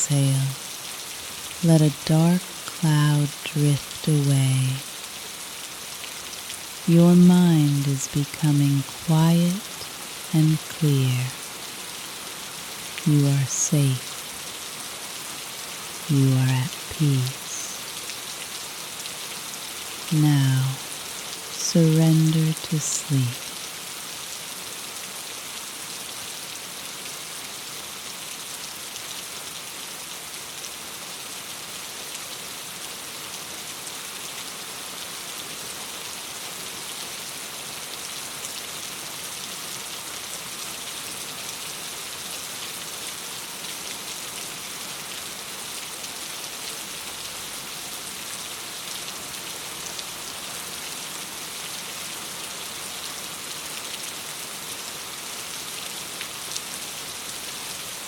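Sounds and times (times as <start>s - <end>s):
rain on a window pane: 0.0s - 6.9s, 7.6s - 58.0s.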